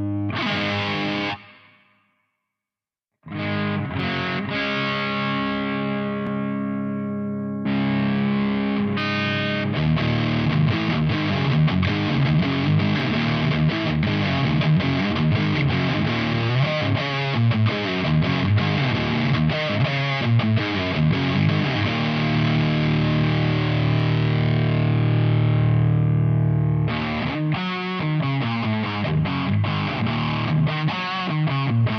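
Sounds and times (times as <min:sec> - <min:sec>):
distorted electric guitar: 0:00.0 - 0:02.0, 0:03.2 - 0:31.9.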